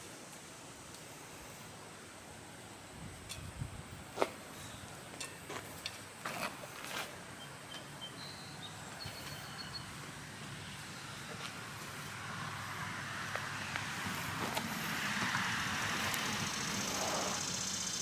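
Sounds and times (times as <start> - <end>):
vehicle humming: 4.0 - 18.0.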